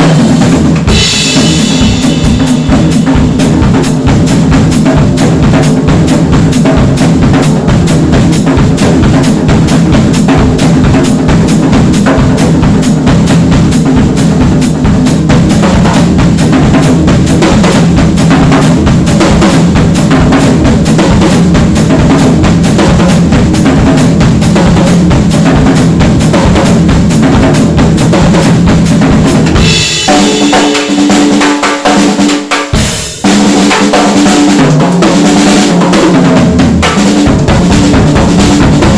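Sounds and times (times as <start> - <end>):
cymbals: 0.0 - 5.6
drum kit groove: 0.0 - 38.9.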